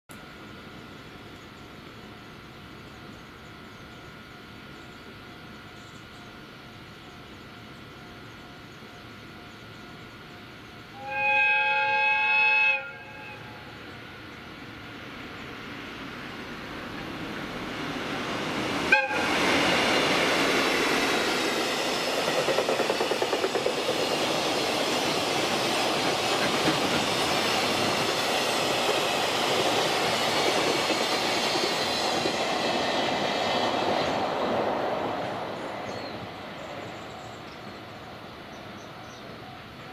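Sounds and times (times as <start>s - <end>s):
train wheels clattering over rail joints: 21.2s - 32.8s.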